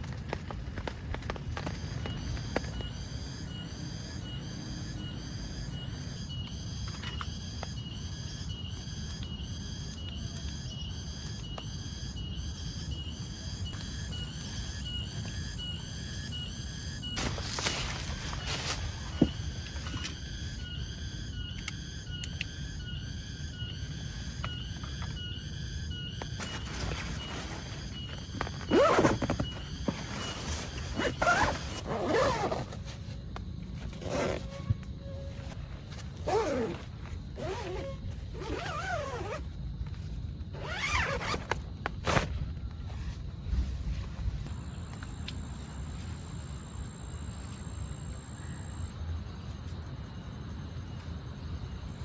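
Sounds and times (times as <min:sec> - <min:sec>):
zipper rasping: 0:28.6 - 0:32.8, 0:34.0 - 0:34.6, 0:36.2 - 0:36.8, 0:37.4 - 0:39.4, 0:40.6 - 0:41.5.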